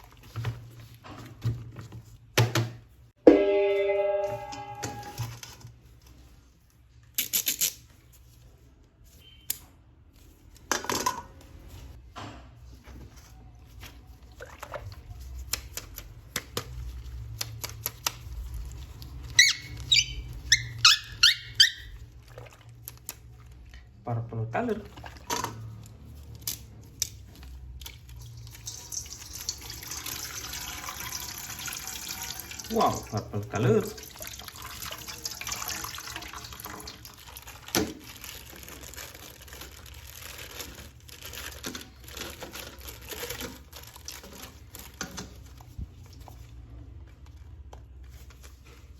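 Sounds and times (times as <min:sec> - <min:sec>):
tap water running into sink: 0:28.4 - 0:33.2, 0:34.0 - 0:38.1.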